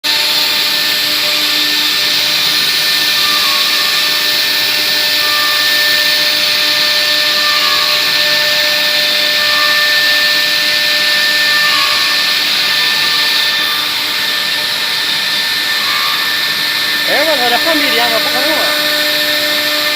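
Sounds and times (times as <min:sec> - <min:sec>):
router spindle whining: 0:00.0 - 0:19.9.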